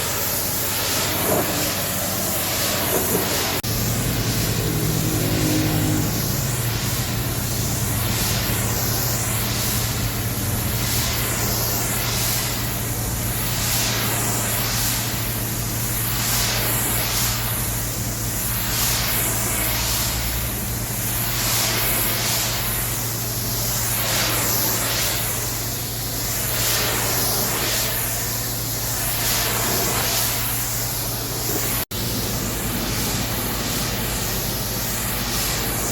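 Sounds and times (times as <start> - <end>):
steady low hum: 0.0 - 22.4
pressure washer jet spraying: 0.0 - 35.9.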